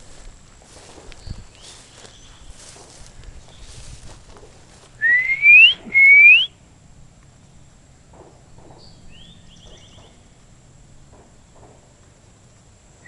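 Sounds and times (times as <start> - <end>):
person whistling rising notes: 5.0 - 6.5
faint bird call: 5.0 - 6.6.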